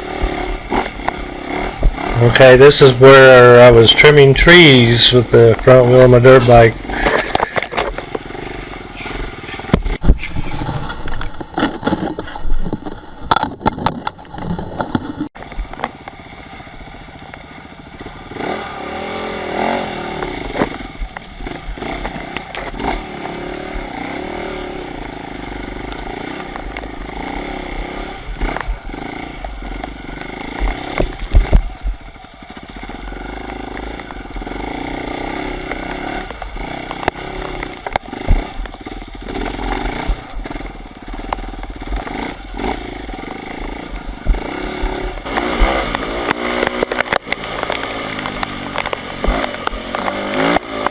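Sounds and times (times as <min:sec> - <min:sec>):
dirt bike engine revving: 0:00.0 - 0:15.3, 0:16.2 - 0:50.9
sharp knocks and clatters: 0:09.0 - 0:16.1, 0:44.2 - 0:50.9.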